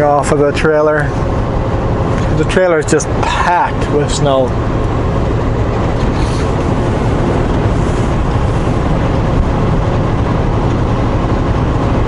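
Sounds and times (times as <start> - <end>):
truck engine drone: 0.0 - 12.0
tyre and road noise: 0.0 - 12.0.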